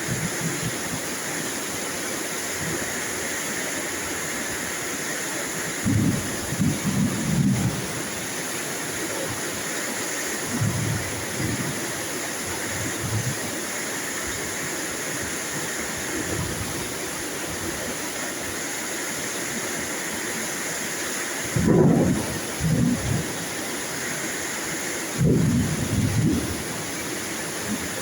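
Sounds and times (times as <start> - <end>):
heavy rain hiss: 0.0 - 28.0.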